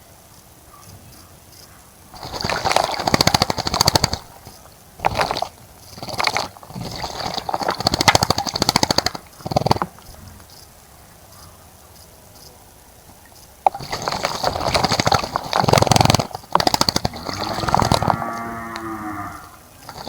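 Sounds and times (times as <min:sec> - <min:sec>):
bird splashing in water: 0:02.1 - 0:10.4, 0:13.1 - 0:20.0.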